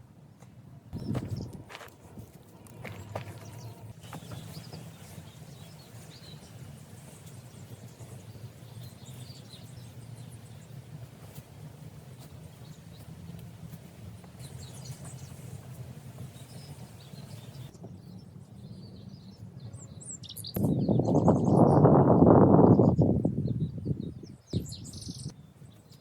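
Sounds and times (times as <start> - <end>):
small birds chirping: 0.3 - 26.0
low background rumble: 0.7 - 20.2.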